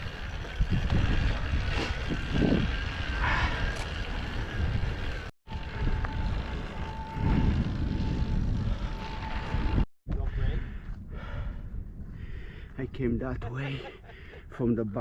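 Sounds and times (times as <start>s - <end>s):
bike rumbling over dirt trail: 0.0s - 9.9s
wind buffeting microphone: 0.0s - 13.5s.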